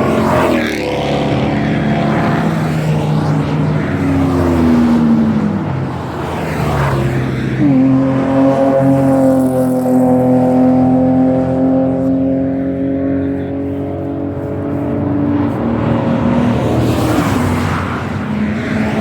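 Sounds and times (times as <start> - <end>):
car engine running hard: 0.0 - 19.0.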